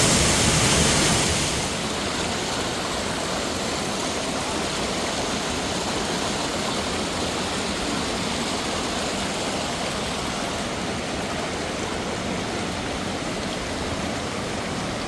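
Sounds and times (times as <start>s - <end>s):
water cascading over rocks: 0.0s - 15.0s.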